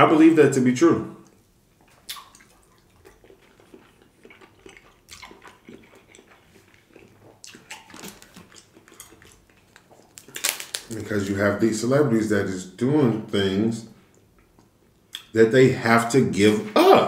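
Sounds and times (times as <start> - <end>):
wet chewing and mouth smacks: 1.2 - 11.0, 14.0 - 15.3
biting into food: 1.9 - 11.0.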